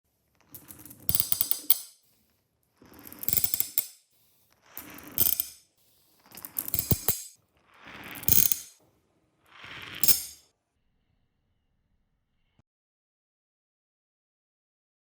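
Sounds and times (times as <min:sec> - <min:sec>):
marbles clattering clicks: 0:00.4 - 0:02.0, 0:02.8 - 0:03.9, 0:04.8 - 0:05.6, 0:06.2 - 0:08.8, 0:09.8 - 0:10.4
marbles rolling down marble run: 0:00.4 - 0:02.0, 0:02.8 - 0:03.9, 0:04.7 - 0:05.6, 0:06.2 - 0:08.8, 0:09.5 - 0:10.4.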